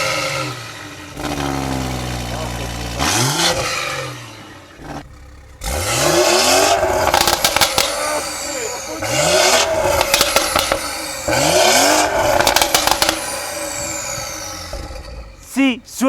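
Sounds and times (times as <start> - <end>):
car engine revving: 0.0 - 16.0
exhaust crackles and pops: 4.8 - 15.5.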